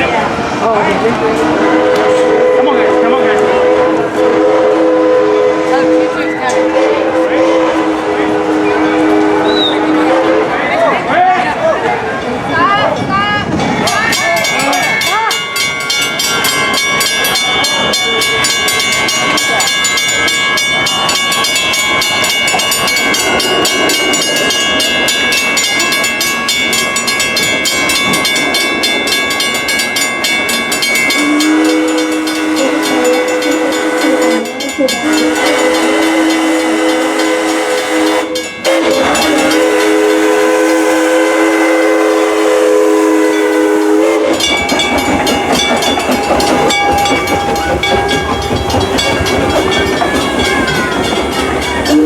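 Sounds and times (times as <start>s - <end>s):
steam locomotive running: 0.0s - 52.0s
steam whistle blast: 1.5s - 10.8s, 31.2s - 44.5s.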